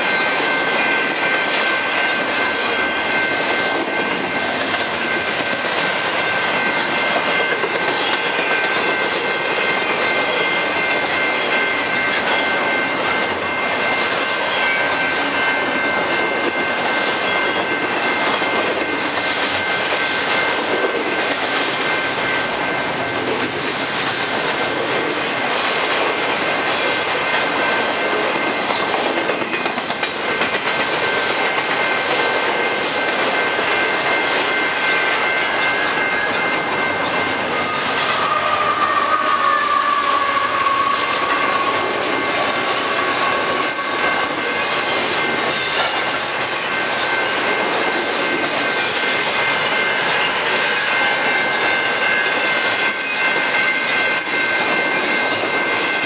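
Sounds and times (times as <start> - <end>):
steel wheels rumbling on rail: 0.0 - 56.0.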